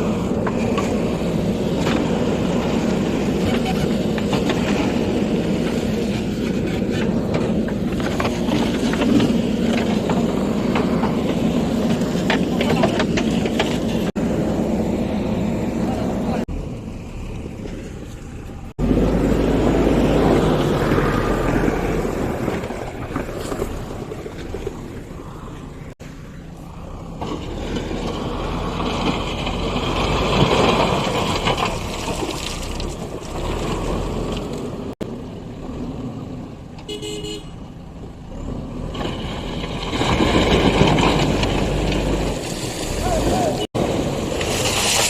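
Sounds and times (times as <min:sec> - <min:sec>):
diesel engine working under load: 0:00.0 - 0:45.0
short horn toot: 0:36.9 - 0:37.6.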